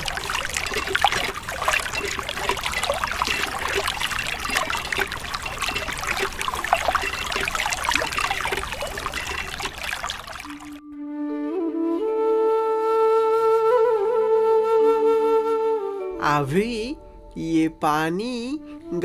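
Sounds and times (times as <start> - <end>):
water trickling and splashing: 0.0 - 10.8.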